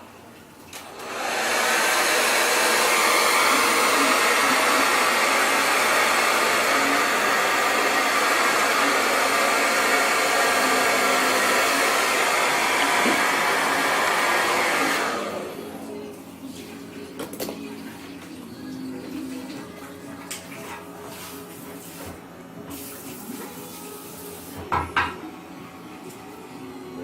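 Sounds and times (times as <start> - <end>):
hair dryer blowing: 0.7 - 16.0.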